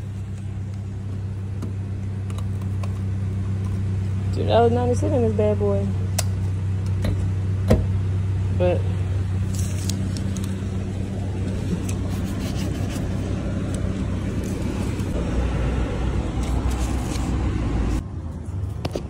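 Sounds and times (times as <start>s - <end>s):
car engine idling: 0.0s - 18.0s
paper rustling: 9.4s - 10.6s, 11.4s - 15.2s, 16.3s - 17.4s.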